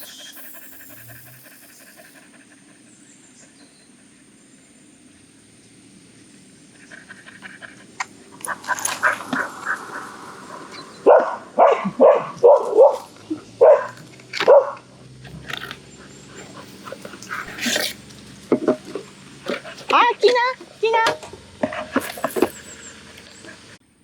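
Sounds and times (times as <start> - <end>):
dog barking: 8.4 - 14.9.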